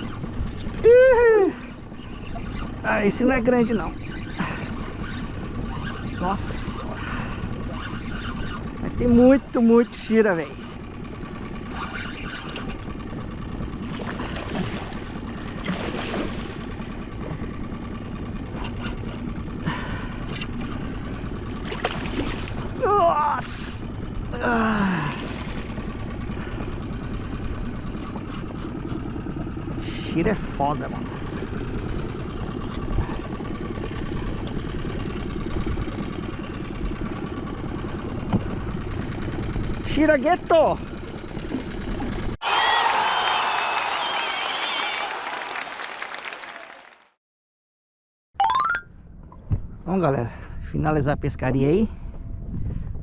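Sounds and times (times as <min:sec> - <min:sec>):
outboard motor idling: 0:00.0 - 0:42.4
boat engine hum: 0:00.0 - 0:46.0
wind: 0:00.0 - 0:47.1, 0:48.4 - 0:53.0.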